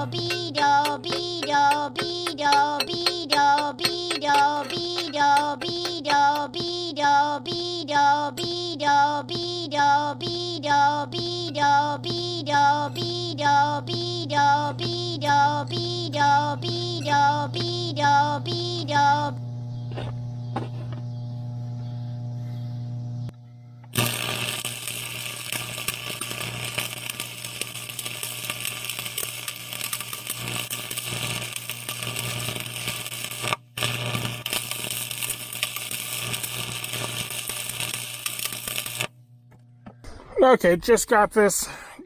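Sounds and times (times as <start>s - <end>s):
sung music: 0.0s - 6.6s
steady hum: 0.0s - 42.0s.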